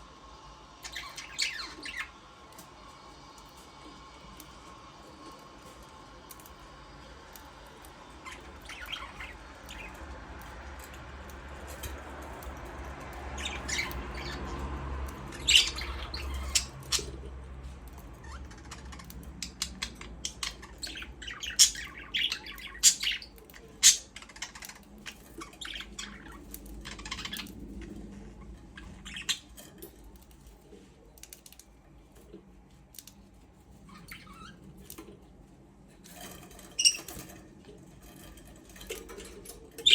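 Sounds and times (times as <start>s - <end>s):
budgerigars chirping and squawking: 0.8s - 2.3s, 7.4s - 29.9s, 33.8s - 35.1s, 36.2s - 37.4s, 38.1s - 39.9s.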